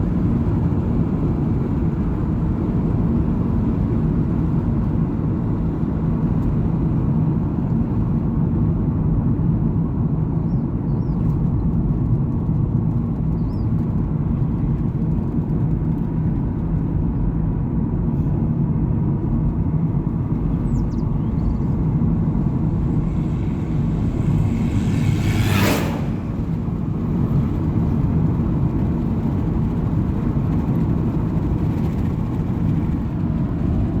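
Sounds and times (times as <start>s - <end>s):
vehicle rumble: 0.0s - 34.0s
sharp whoosh: 21.0s - 28.1s.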